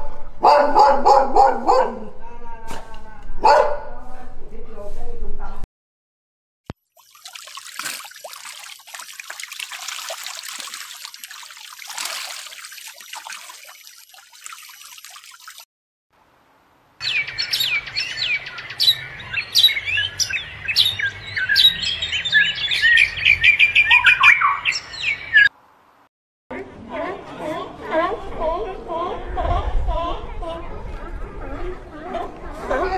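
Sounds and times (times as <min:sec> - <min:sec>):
bird splashing in water: 0:06.9 - 0:15.6
birds chirping and trilling: 0:17.0 - 0:25.5.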